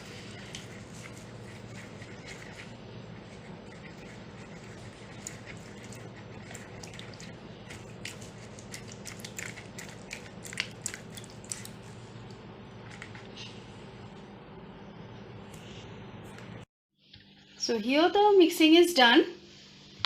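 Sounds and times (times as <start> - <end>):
spoon scraping a bowl: 0.0 - 8.8
steady low hum: 0.0 - 20.0.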